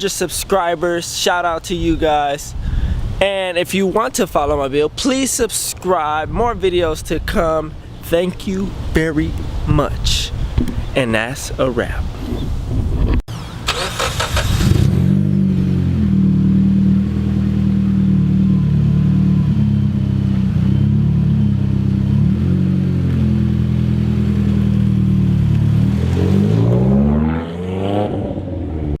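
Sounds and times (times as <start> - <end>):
car engine running: 14.2 - 27.1.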